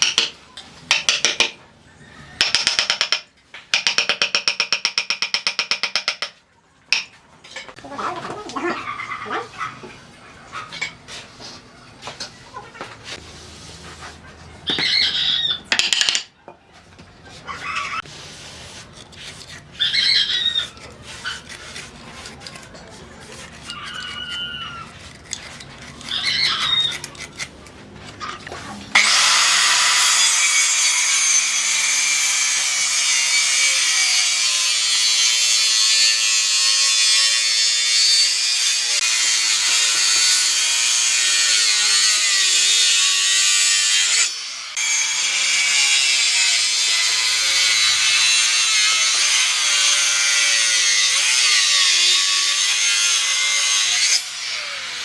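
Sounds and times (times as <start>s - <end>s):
electric power tool cutting wood: 28.9s - 55.0s.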